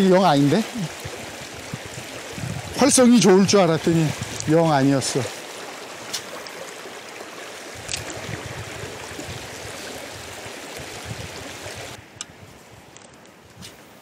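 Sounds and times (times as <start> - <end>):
water rushing over stones: 0.0 - 12.0
low rumbling: 0.8 - 4.4.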